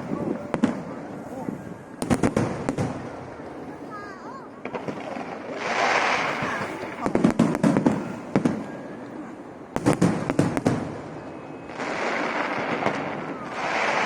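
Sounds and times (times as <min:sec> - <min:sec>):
firework crackling bangs: 0:00.0 - 0:08.8, 0:09.7 - 0:14.0
firework rushing hiss: 0:04.6 - 0:08.6, 0:09.8 - 0:14.0.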